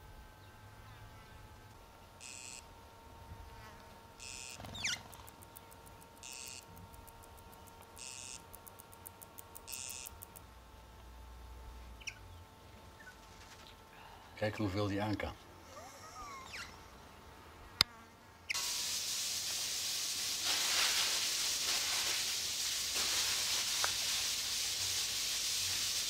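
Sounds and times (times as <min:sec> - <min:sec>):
bird chirping: 0:04.2 - 0:07.2, 0:12.0 - 0:12.4, 0:16.3 - 0:16.8.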